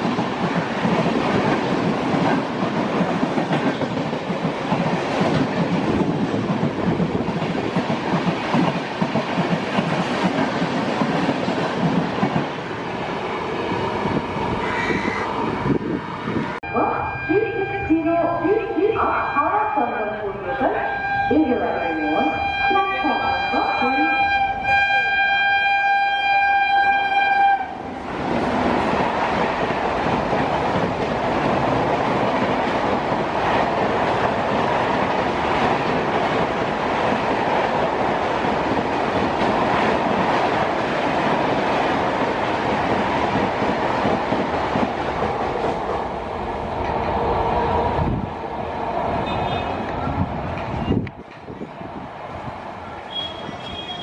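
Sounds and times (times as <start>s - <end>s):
train wheels rushing and rattling: 0.0s - 16.6s, 27.8s - 54.0s
locomotive horn: 19.1s - 27.8s, 49.2s - 49.8s, 53.1s - 54.0s.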